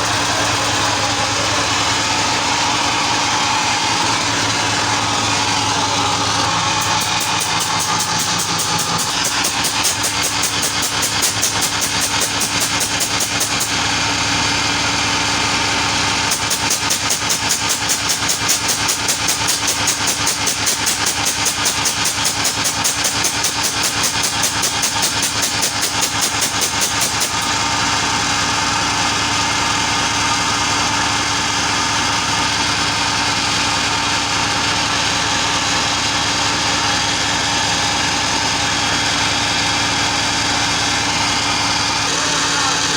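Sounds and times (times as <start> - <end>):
ship engine drone: 0.0 - 9.0.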